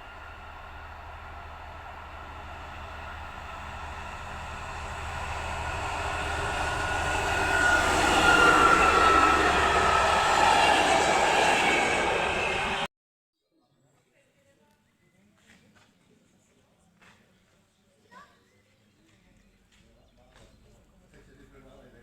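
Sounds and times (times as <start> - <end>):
passenger train approaching: 0.0 - 12.9
train wheels rumbling: 0.0 - 12.9
train whine: 0.0 - 12.9.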